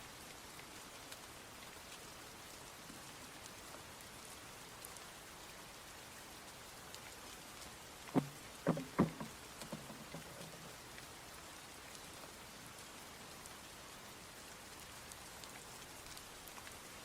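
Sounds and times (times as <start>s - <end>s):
steady rain falling: 0.0s - 17.0s
drops ticking on surfaces: 8.1s - 10.8s
loud knock: 8.2s - 10.7s.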